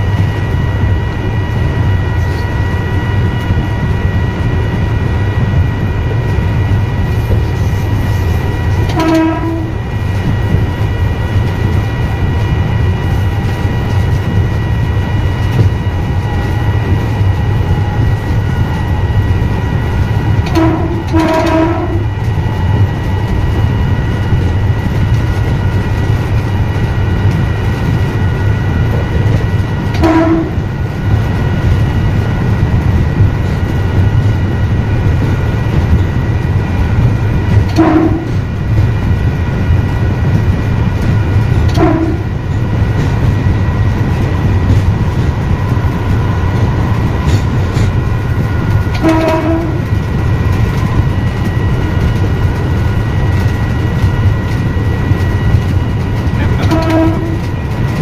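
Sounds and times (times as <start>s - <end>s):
electric train rumbling: 0.0s - 58.0s
train horn toots: 8.8s - 10.0s, 20.4s - 22.2s, 29.9s - 30.7s, 37.7s - 38.5s, 41.7s - 42.5s, 48.9s - 50.0s, 56.4s - 57.7s.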